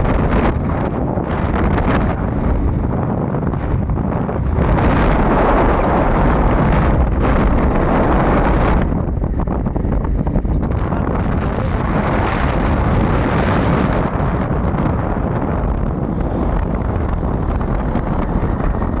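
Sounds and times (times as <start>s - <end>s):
low rumble: 0.0s - 19.0s
wind buffeting microphone: 0.0s - 19.0s.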